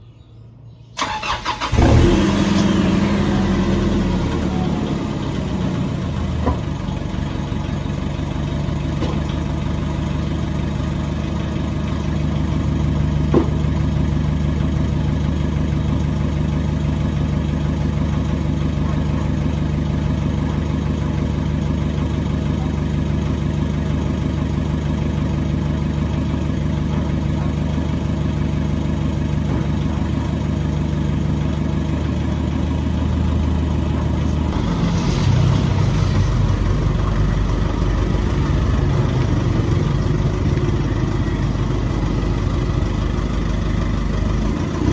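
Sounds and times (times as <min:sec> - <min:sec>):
car engine starting and idling: 0:01.0 - 0:44.9.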